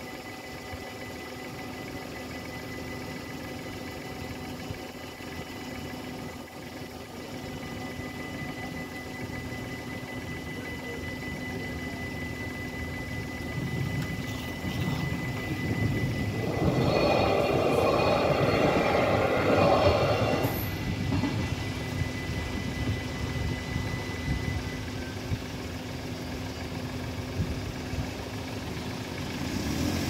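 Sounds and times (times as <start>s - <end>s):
level crossing warning bells: 0.0s - 27.2s
train passing: 13.4s - 23.2s.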